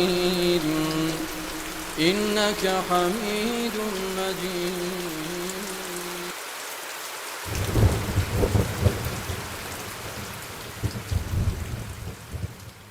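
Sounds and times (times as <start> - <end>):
steady rain: 0.0 - 12.9
rolling thunder: 7.5 - 12.6.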